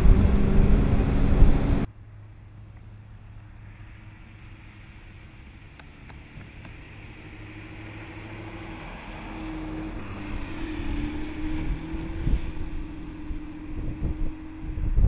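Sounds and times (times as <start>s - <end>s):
car driving past: 3.0s - 15.0s.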